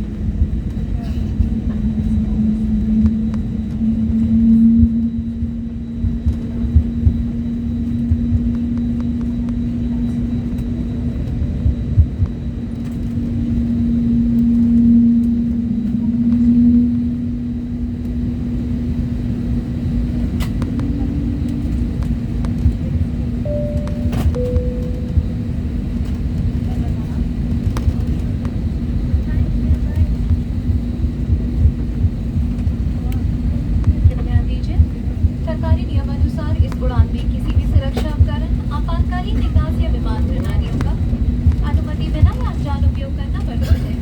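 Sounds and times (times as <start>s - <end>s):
aircraft cabin engine hum: 0.0s - 44.0s
two-note cabin chime: 23.5s - 25.8s.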